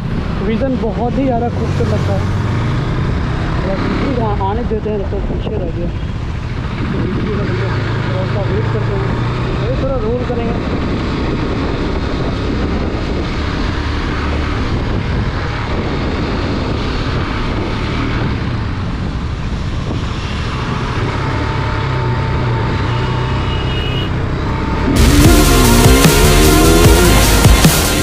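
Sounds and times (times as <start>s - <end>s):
wind on microphone: 0.0s - 23.4s
motorcycle engine running: 24.1s - 28.0s.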